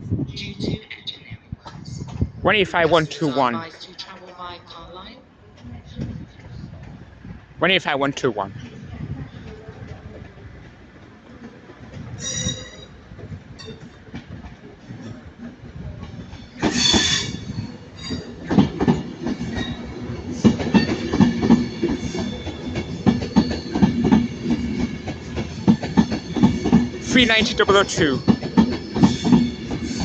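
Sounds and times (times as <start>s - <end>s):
wheels clattering over rail joints: 8.6s - 30.0s
train wheel squeal: 12.1s - 14.0s, 16.2s - 18.5s, 19.4s - 19.9s, 20.6s - 27.0s, 28.1s - 30.0s.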